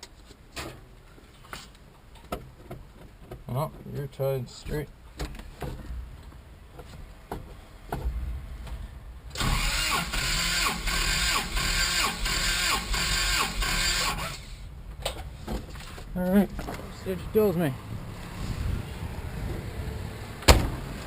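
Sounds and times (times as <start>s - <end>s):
starter motor cranking engine: 9.4s - 14.6s.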